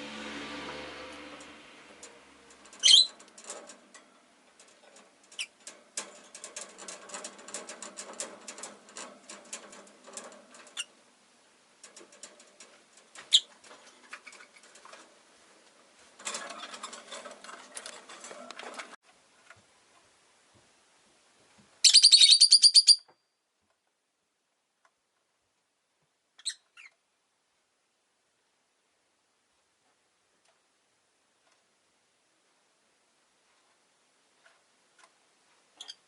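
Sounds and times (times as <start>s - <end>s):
small ticks and scratches: 1.4s - 11.1s, 11.8s - 20.1s, 34.4s - 36.0s
lovebirds chirping: 2.8s - 3.2s.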